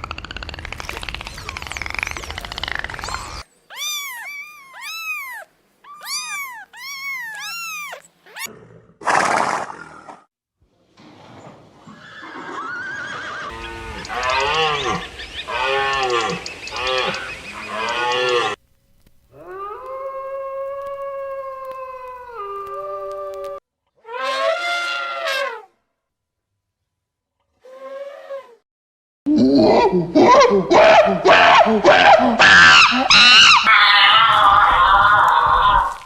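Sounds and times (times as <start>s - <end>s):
animal cries: 3.1s - 8.5s, 30.3s - 36.0s.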